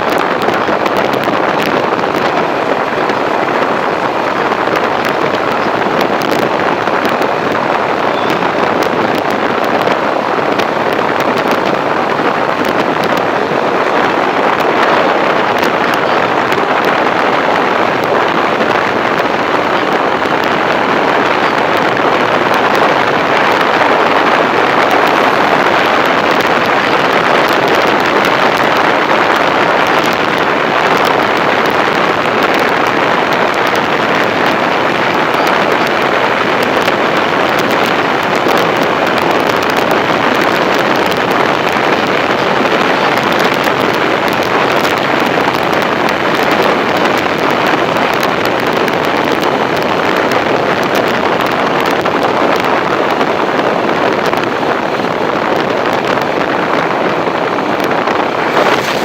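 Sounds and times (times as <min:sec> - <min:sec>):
wind noise on microphone: 0:00.0 - 0:59.0.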